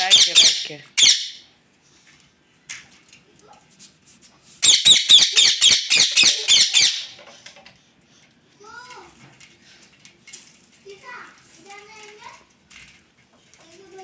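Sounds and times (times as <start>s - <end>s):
parrot squawking: 0.0s - 1.4s, 4.6s - 7.2s.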